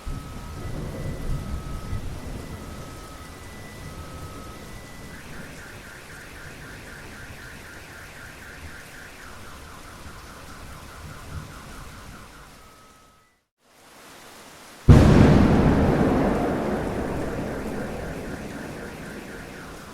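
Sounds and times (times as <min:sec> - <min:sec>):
steady rain: 0:00.0 - 0:13.0, 0:13.6 - 0:19.9
car alarm warbling: 0:14.9 - 0:19.8.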